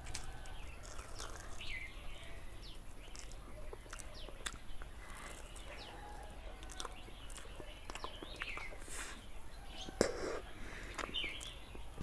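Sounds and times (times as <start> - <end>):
eating clicks: 0.0 - 1.9, 3.0 - 6.0, 6.6 - 9.1, 9.9 - 11.8
birds chirping: 0.0 - 12.0.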